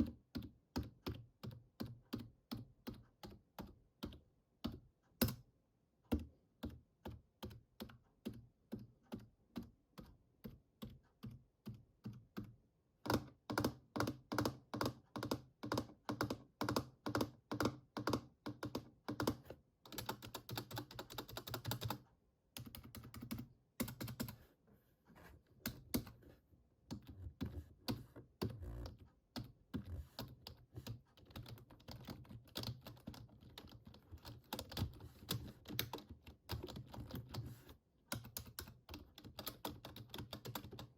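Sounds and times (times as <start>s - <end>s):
keyboard keys tapping: 6.1s - 22.0s, 22.6s - 24.4s, 26.9s - 40.9s.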